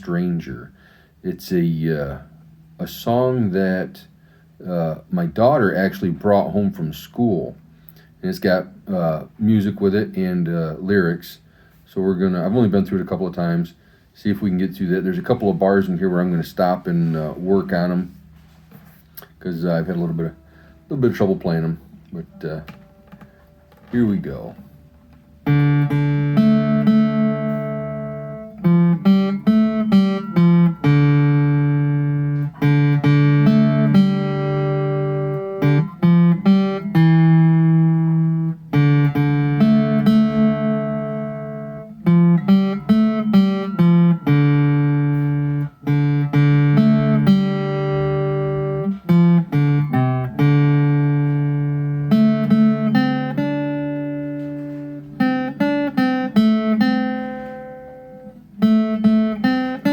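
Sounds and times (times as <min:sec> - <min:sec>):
acoustic guitar plucked: 0:14.6 - 0:59.9.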